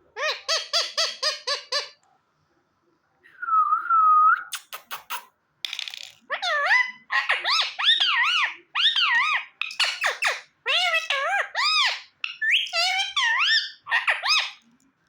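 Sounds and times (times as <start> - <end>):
parakeet calling: 0.2 - 2.0, 6.3 - 14.6.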